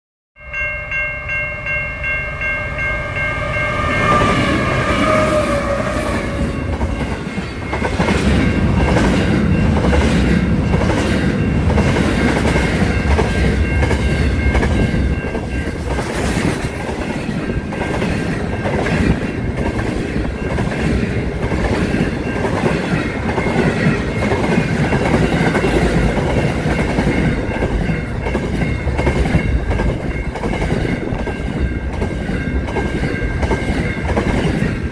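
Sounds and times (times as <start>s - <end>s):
multi-tone train horn: 2.6s - 6.7s.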